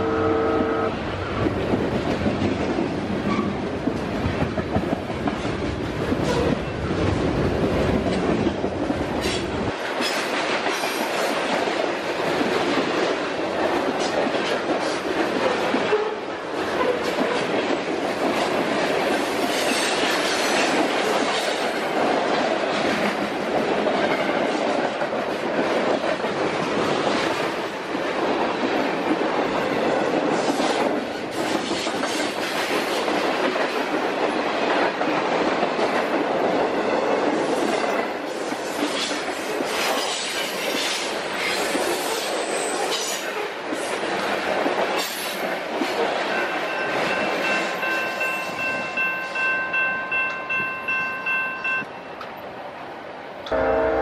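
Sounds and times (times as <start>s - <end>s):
freight cars rumbling on rails: 0.0s - 52.6s.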